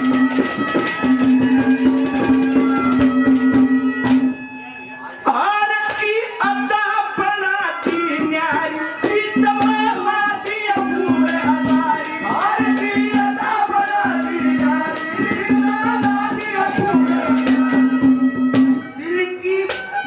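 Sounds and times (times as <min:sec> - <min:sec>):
rapid hand-drum strokes: 0:00.0 - 0:04.4, 0:07.8 - 0:18.9.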